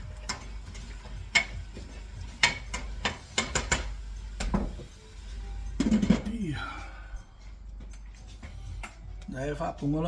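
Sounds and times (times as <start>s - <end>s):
utensil clinking against cookware: 0.0s - 4.5s.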